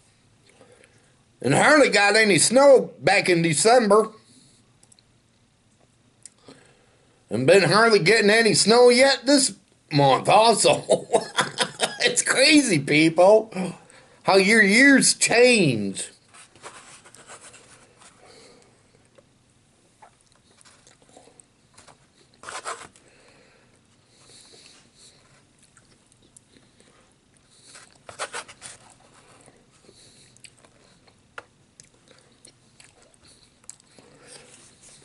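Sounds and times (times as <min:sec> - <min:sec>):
man chewing food: 0:19.9 - 0:35.0.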